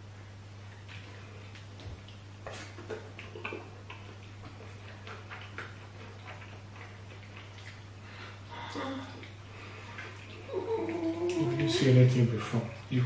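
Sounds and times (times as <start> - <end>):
steady low hum: 0.0 - 13.0
chewing clicks and smacks: 0.8 - 7.9.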